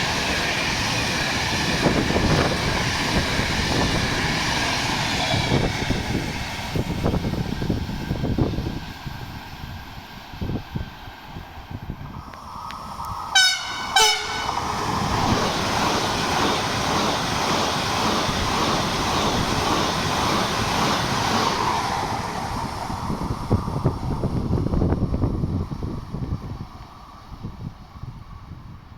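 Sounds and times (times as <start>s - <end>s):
train wheels rushing on rail: 0.0s - 28.9s
train horn blasts: 13.3s - 14.8s.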